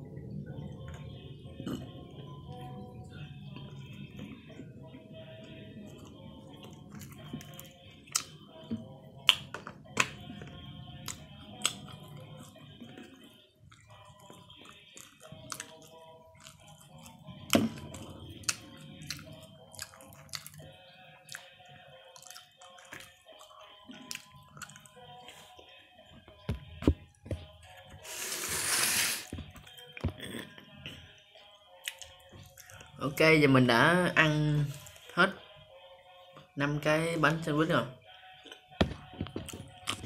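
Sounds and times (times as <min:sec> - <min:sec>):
background music: 0:00.0 - 0:40.0
person chewing toasted sandwiches: 0:05.5 - 0:25.8, 0:31.7 - 0:33.0, 0:38.3 - 0:40.0
eating clicks and smacks: 0:18.4 - 0:25.0.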